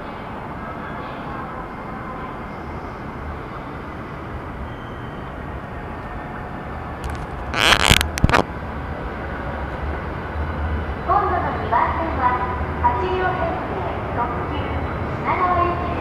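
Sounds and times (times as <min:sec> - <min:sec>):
busy station platform rumble: 0:00.0 - 0:07.6, 0:08.4 - 0:16.0
sharp clicks: 0:07.0 - 0:08.4.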